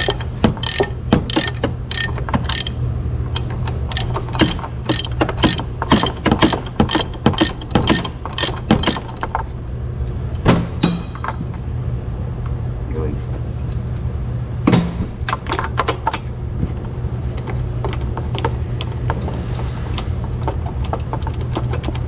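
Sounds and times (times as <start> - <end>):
socket ratchet clicking: 0.0 - 9.2
low hum: 0.0 - 22.0.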